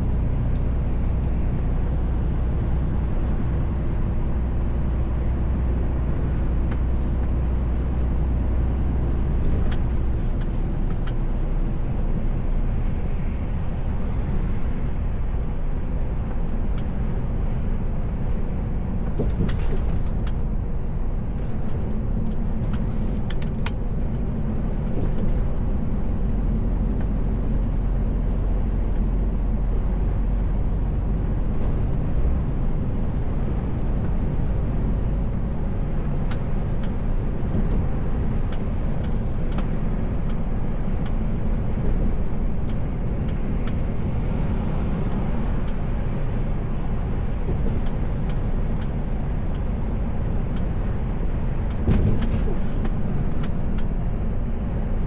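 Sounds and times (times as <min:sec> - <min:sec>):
road and tyre noise: 0:00.0 - 0:55.0
truck engine rumble: 0:00.0 - 0:55.0.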